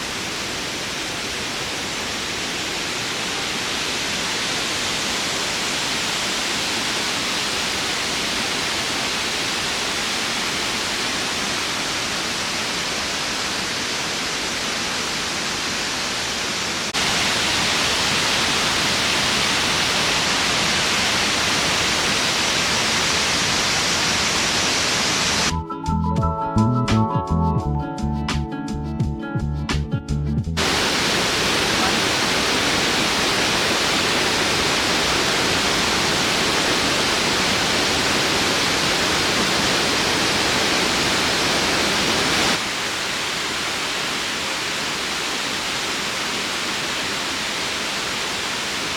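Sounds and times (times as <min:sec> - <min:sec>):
waterfall rushing: 0:00.0 - 0:25.5, 0:30.6 - 0:48.9
guitar music: 0:25.5 - 0:30.6.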